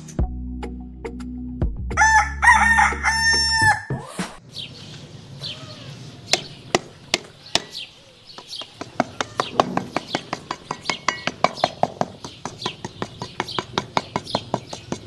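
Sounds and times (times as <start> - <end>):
background music: 0.0 - 4.0
rooster crowing: 2.0 - 4.0
sharp taps: 8.4 - 15.0.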